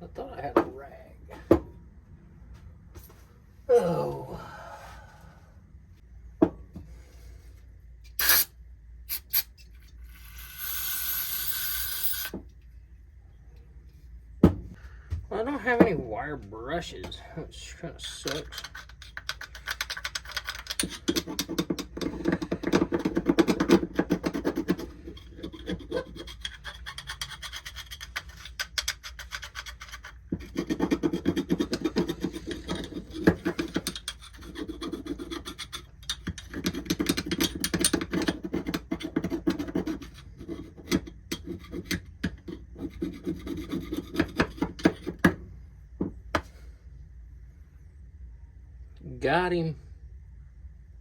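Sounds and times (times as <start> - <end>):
scrubbing a metal part: 9.1 - 12.3, 18.0 - 45.2.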